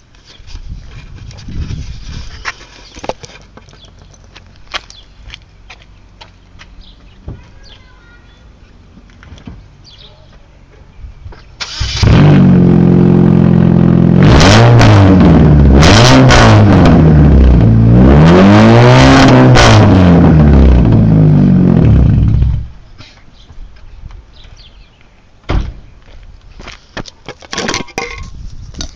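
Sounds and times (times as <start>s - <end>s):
car engine revving: 11.6s - 22.8s.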